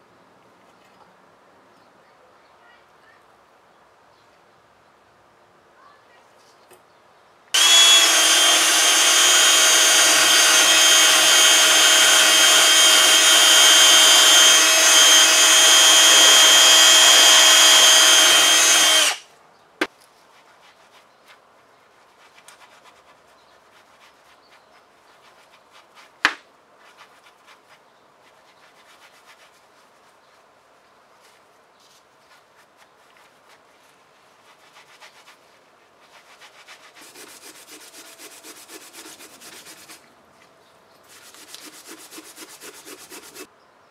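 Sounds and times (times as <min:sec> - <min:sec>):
faint handling noises: 0:00.4 - 0:01.2
power tool whirring on metal: 0:07.6 - 0:19.2.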